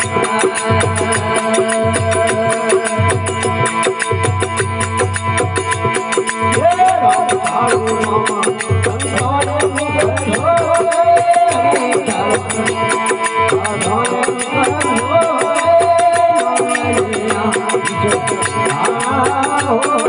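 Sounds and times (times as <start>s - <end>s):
fast percussive strokes: 0.0s - 20.0s.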